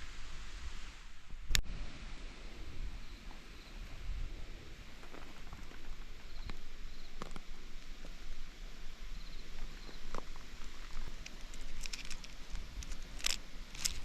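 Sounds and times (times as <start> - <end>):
wood fire crackling: 4.8 - 14.0
sharp pops and snaps: 10.0 - 14.0.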